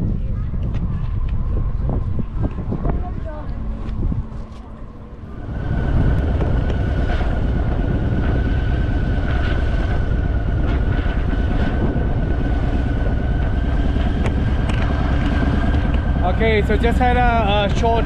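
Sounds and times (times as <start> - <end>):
faint steady whine: 0.0 - 18.0
road and wind noise: 0.0 - 18.0
motorcycle engine running: 5.0 - 18.0.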